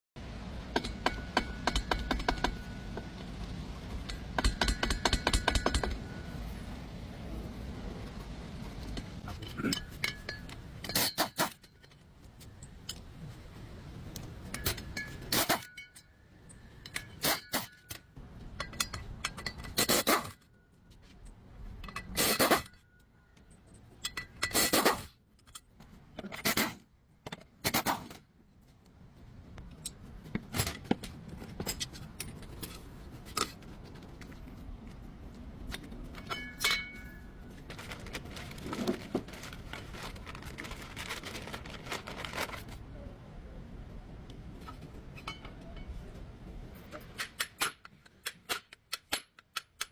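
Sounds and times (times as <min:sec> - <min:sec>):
low steady hum: 0:00.2 - 0:24.6
metal tools clinking: 0:08.8 - 0:13.1, 0:36.1 - 0:39.7.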